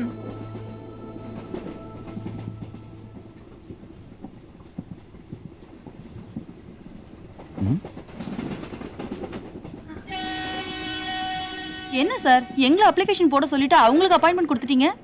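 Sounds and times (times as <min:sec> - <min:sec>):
low train rumble: 0:00.0 - 0:15.0
train wheels clicking over rail joints: 0:00.2 - 0:11.0.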